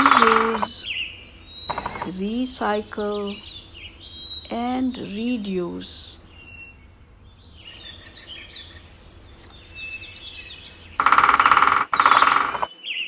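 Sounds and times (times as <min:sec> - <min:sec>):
woodpecker drumming on wood: 0:00.0 - 0:00.8, 0:01.7 - 0:02.2, 0:11.0 - 0:12.7
small birds chirping: 0:00.0 - 0:13.0.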